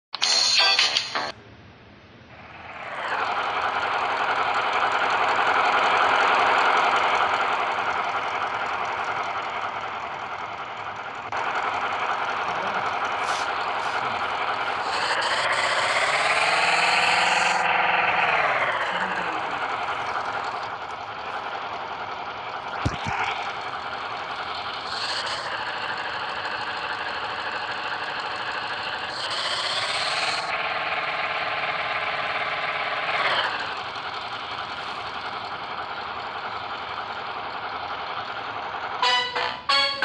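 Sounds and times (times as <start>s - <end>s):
engine running and revving: 2.4s - 40.0s.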